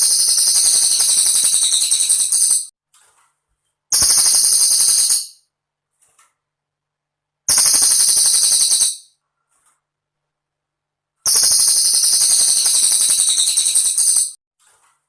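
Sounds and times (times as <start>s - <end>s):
bird high rapid trill: 0.0s - 2.7s, 3.9s - 5.4s, 7.5s - 9.1s, 11.3s - 14.4s.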